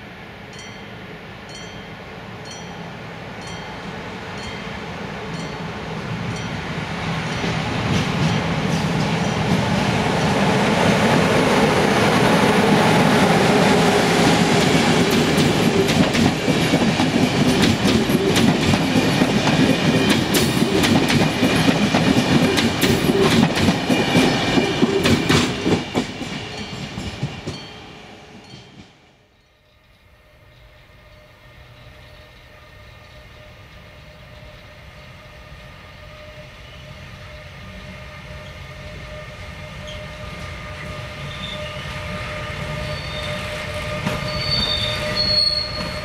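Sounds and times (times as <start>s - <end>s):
train wheels rumbling: 2.4s - 29.1s, 29.7s - 46.0s
clacks over rail joints: 14.6s - 27.6s.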